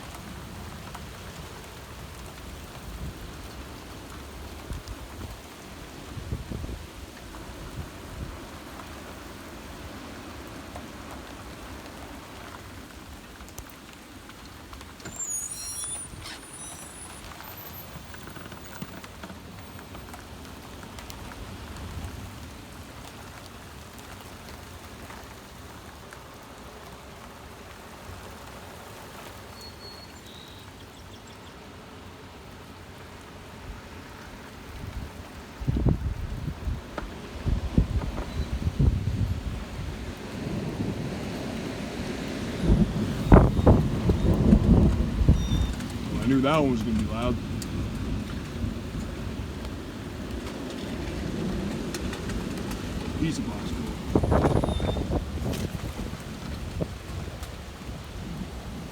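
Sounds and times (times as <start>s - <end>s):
heavy rain: 0.0s - 58.9s
gusty wind: 0.2s - 10.2s, 33.4s - 58.9s
high squeak: 15.0s - 18.9s.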